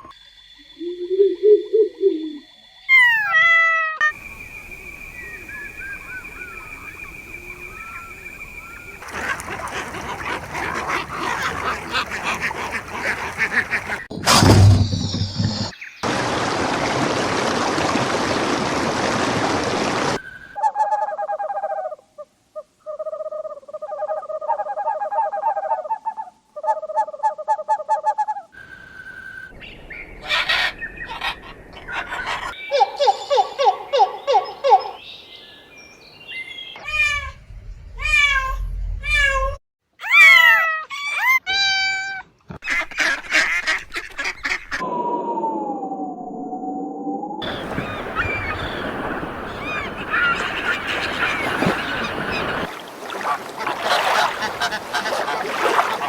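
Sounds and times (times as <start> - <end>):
chirps and squawks: 0.0 - 14.1, 30.2 - 35.0, 47.4 - 56.0
fowl and birds calling: 2.9 - 14.1, 29.7 - 37.4, 47.4 - 56.0.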